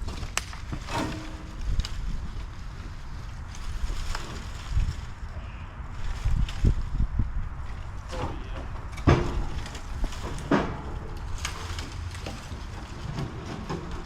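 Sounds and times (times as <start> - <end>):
sharp knocks and cracks: 0.0 - 2.2, 8.1 - 14.0
wind rumble on microphone: 0.0 - 14.0.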